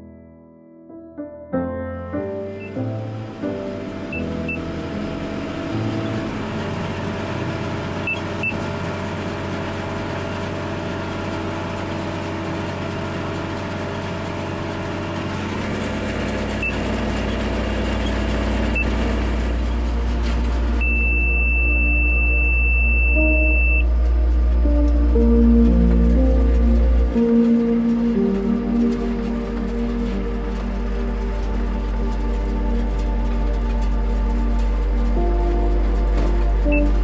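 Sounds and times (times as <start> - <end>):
tractor engine rumbling: 2.5 - 37.0
high electronic beeps: 8.0 - 8.6, 18.7 - 19.0, 20.8 - 23.8.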